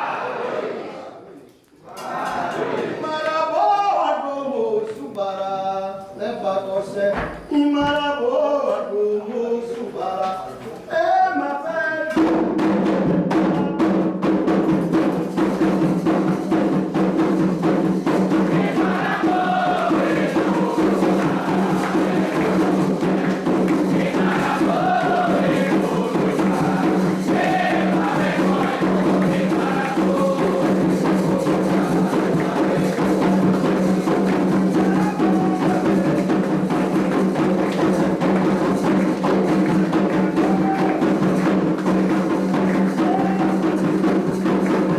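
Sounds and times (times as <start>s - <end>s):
group singing a chant: 0.0s - 12.3s, 15.8s - 44.9s
hand drums playing: 12.2s - 44.9s.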